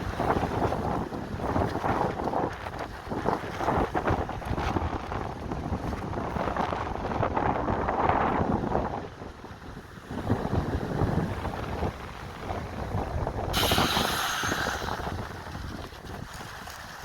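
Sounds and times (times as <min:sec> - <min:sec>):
wind buffeting microphone: 0:00.0 - 0:17.0
water rushing under board: 0:10.0 - 0:17.0
loud hiss: 0:13.5 - 0:15.2.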